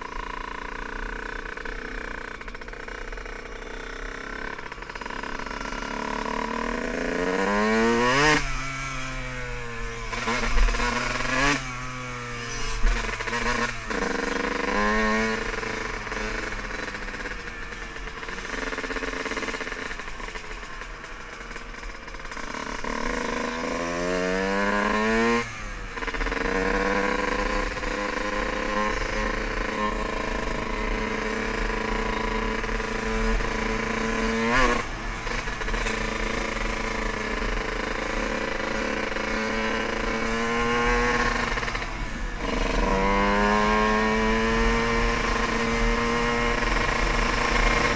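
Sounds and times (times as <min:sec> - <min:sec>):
dirt bike engine accelerating: 0:00.0 - 0:47.9.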